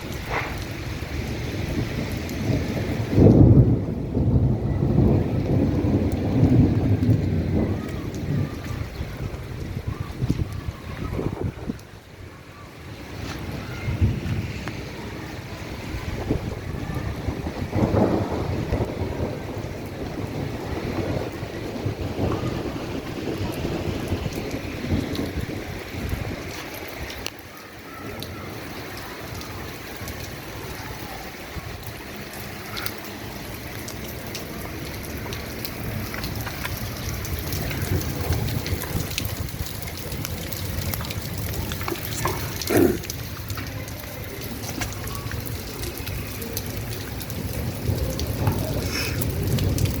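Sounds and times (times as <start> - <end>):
steady rain: 0.0 - 50.0
water drops ticking: 32.2 - 50.0.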